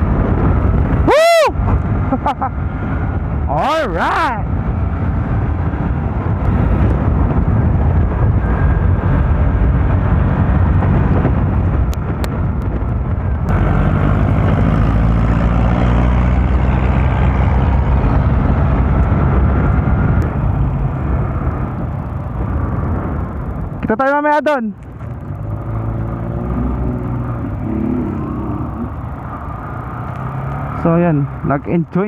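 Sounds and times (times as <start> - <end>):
motorcycle engine accelerating: 0.0 - 32.0
wind rushing over microphone: 0.0 - 32.0.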